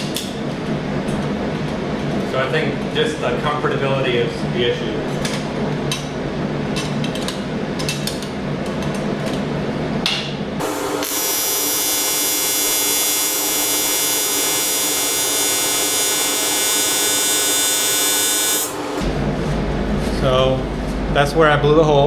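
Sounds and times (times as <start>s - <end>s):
welding arc buzz: 10.6s - 19.4s
low hum: 10.6s - 22.0s.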